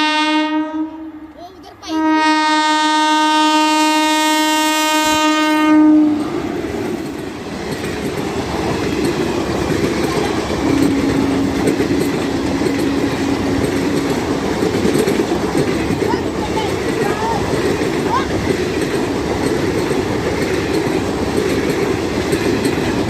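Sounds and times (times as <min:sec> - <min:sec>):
locomotive horn blast: 0:00.0 - 0:06.4, 0:10.6 - 0:13.8
train wheels rumbling on rail: 0:00.0 - 0:23.0.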